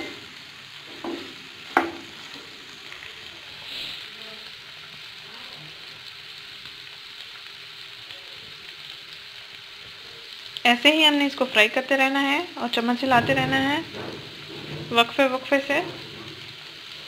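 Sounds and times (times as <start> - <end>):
liver sizzling in oil: 0.0 - 17.0
spatula knocking on pan: 1.0 - 2.1.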